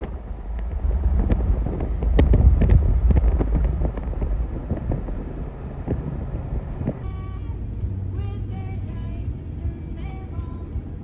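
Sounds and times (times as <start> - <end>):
heavy rain pattering: 0.0 - 7.0
wind rumble on microphone: 0.0 - 7.0.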